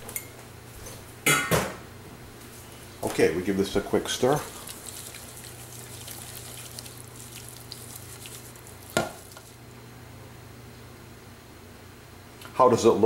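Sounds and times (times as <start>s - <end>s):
steady low hum: 0.0s - 13.0s
soft stirring in metal bowl: 2.7s - 9.6s.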